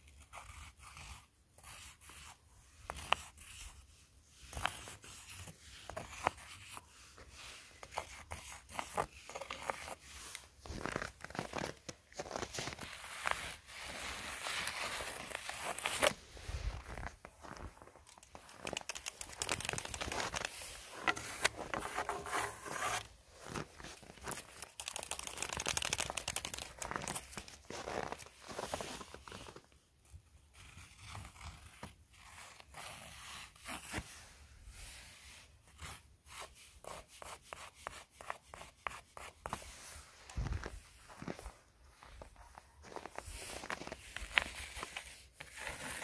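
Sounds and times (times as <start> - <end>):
footsteps crunching through snow: 10.6 - 24.3, 40.3 - 44.8.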